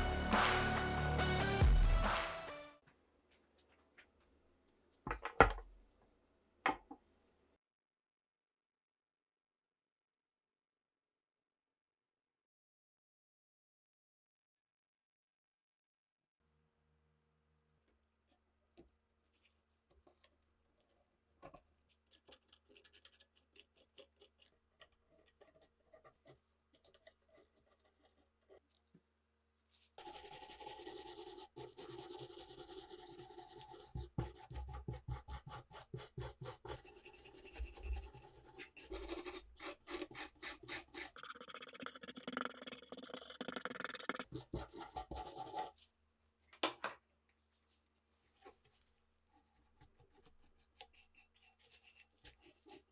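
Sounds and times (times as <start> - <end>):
hand rubbing and scraping: 29.6 - 45.9, 47.4 - 52.9.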